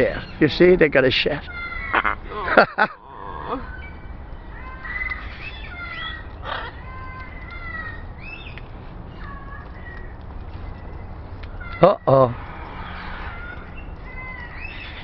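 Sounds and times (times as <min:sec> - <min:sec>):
parrots whistling calls: 0:04.8 - 0:08.6
parrot squawk: 0:05.6 - 0:06.8.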